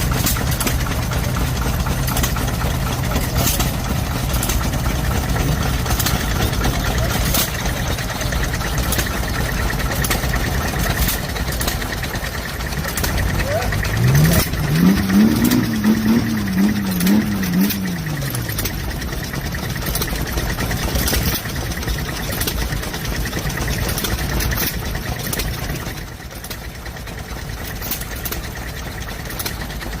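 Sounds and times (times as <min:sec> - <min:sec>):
stationary engine running: 0:00.0 - 0:30.0
wavering voice-like tone: 0:12.9 - 0:14.7.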